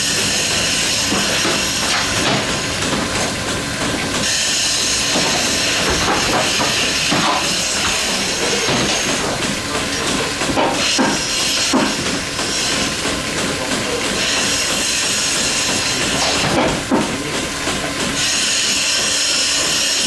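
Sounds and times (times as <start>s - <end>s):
milking machine hissing: 0.0s - 20.0s.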